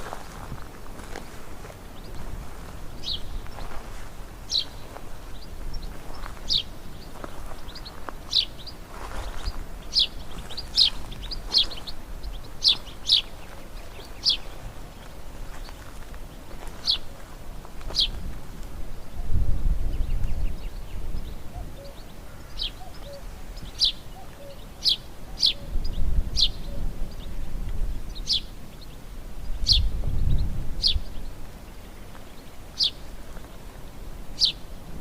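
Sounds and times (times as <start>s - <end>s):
songbirds chirping: 0.0s - 35.0s.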